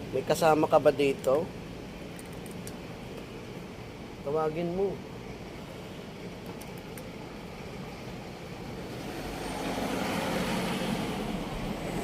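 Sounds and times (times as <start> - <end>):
motor vehicle passing: 8.9 - 12.0.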